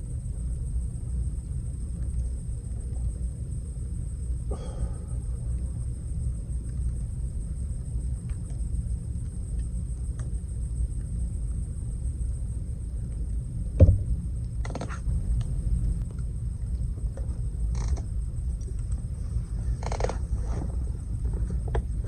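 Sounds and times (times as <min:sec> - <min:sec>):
low rumble: 0:00.0 - 0:22.0
thump: 0:13.8 - 0:14.1.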